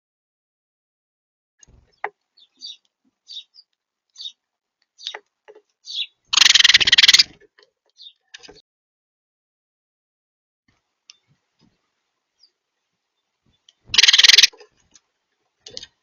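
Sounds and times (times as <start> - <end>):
small birds chirping: 1.6 - 8.6, 11.0 - 15.0.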